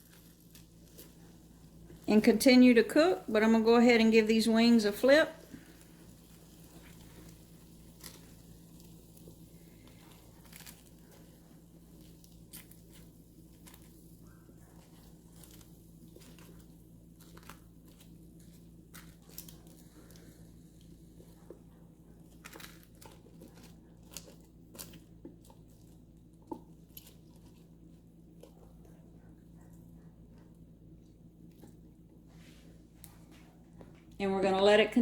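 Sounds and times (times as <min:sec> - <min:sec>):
chicken wings sizzling and crackling: 0:00.0 - 0:21.2
steady low hum: 0:00.0 - 0:35.0.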